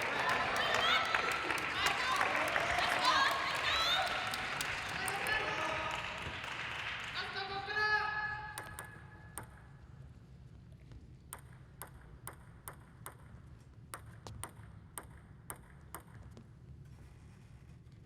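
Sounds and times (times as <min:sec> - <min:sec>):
table tennis ball clicking: 0:08.6 - 0:09.7, 0:11.3 - 0:16.4.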